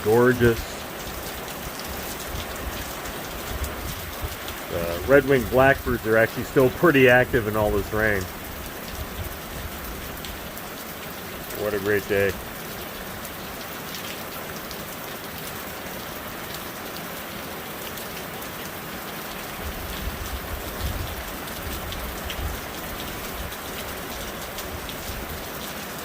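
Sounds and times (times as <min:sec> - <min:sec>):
raindrops ticking: 0:00.0 - 0:26.0
steady rain falling: 0:00.0 - 0:26.0.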